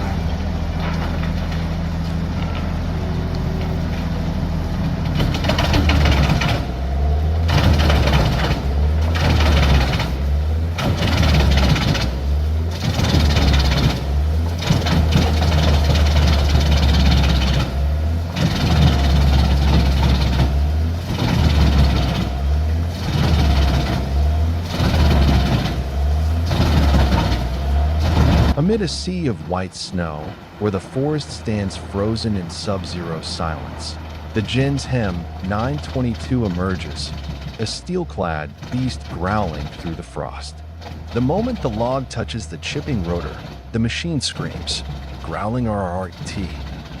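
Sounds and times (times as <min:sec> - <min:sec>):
diesel engine drone: 0:00.0 - 0:47.0
wood chipper shredding timber: 0:00.0 - 0:47.0.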